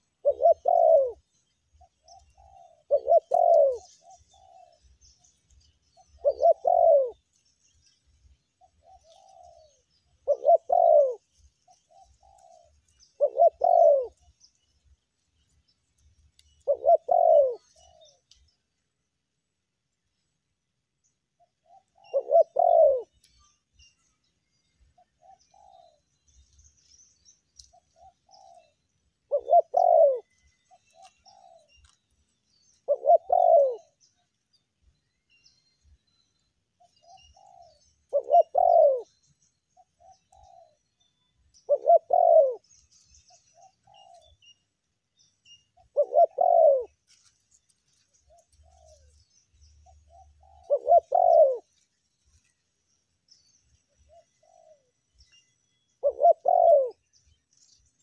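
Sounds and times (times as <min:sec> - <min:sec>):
dove cooing: 0:00.0 - 0:05.0, 0:05.9 - 0:07.3, 0:08.6 - 0:14.3, 0:16.5 - 0:18.4, 0:21.4 - 0:23.2, 0:25.0 - 0:26.1, 0:27.6 - 0:31.9, 0:32.8 - 0:34.0, 0:36.8 - 0:39.2, 0:39.8 - 0:40.8, 0:41.6 - 0:42.7, 0:43.3 - 0:44.4, 0:45.8 - 0:47.3, 0:47.9 - 0:51.8, 0:54.0 - 0:55.0, 0:56.0 - 0:57.1.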